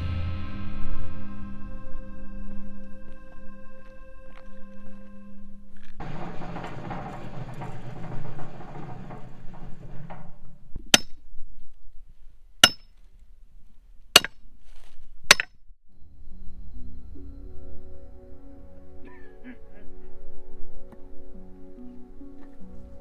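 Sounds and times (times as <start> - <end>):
hand tool chopping wood: 12.6 - 12.9, 14.2 - 14.4.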